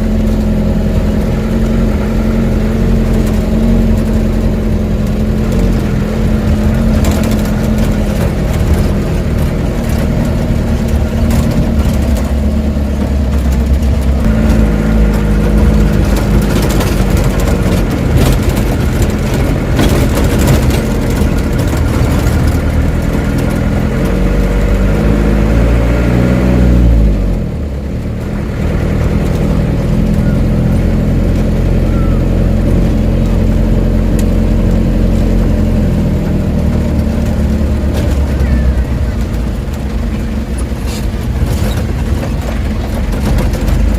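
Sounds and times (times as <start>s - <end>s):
knocks and rattles: 0.0s - 26.5s, 27.1s - 43.9s
heavy diesel truck engine running: 0.0s - 43.9s.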